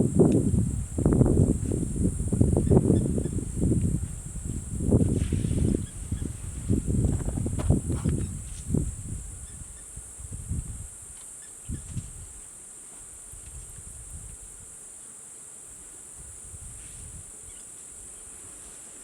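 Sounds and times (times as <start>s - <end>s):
insects droning: 0.0s - 19.0s
low thumps: 0.3s - 8.9s.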